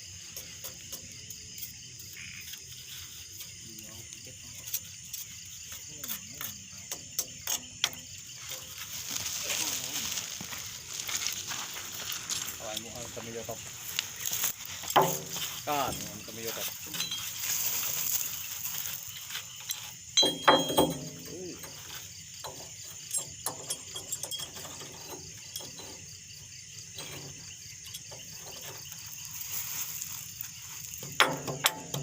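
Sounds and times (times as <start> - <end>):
crickets chirping: 0.0 - 32.0
metallic clinks and knocks: 14.7 - 18.2, 19.5 - 26.3, 30.9 - 32.0.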